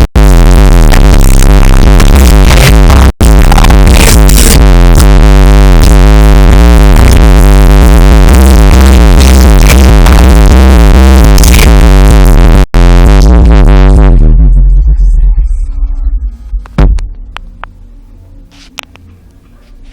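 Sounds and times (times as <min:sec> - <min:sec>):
electronic music with heavy bass: 0:00.0 - 0:18.8.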